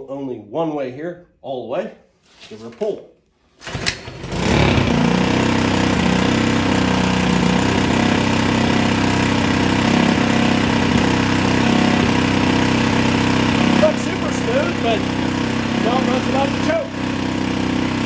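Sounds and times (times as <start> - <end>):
small engine pull-started and running: 3.6 - 18.0.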